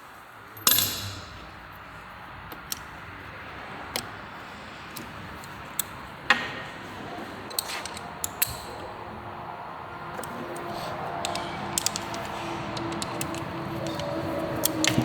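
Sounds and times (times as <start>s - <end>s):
metallic clicks of tools handled: 7.5s - 8.9s, 10.1s - 15.0s.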